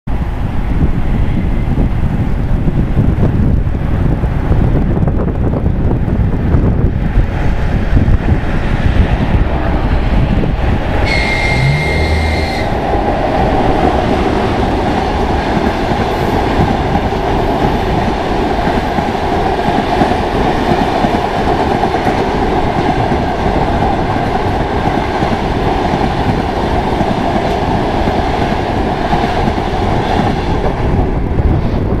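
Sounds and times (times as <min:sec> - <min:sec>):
train wheels on rails: 0:00.1 - 0:32.0
high-pitched tone: 0:11.0 - 0:12.8.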